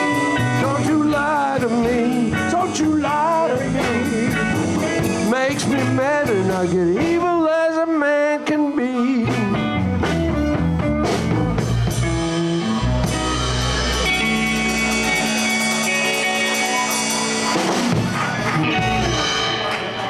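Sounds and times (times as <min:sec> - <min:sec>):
live blues band playing: 0:00.0 - 0:20.0
guitar chord ringing: 0:12.1 - 0:18.0.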